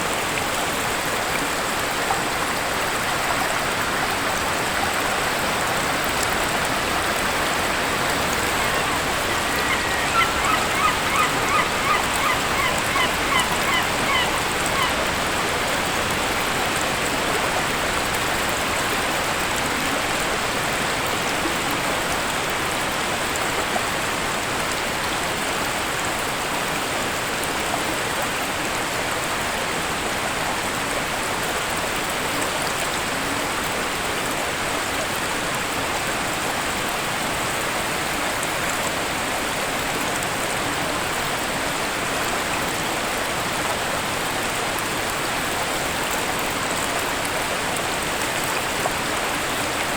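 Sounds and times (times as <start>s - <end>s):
waterfall rushing: 0.0s - 21.8s
bird calling: 6.8s - 15.6s.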